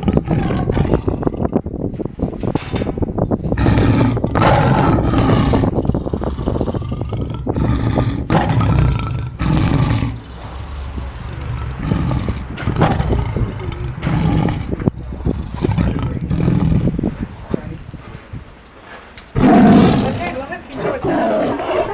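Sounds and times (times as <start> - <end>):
tiger roaring and growling: 0.0 - 2.1, 3.5 - 17.6, 19.3 - 21.9.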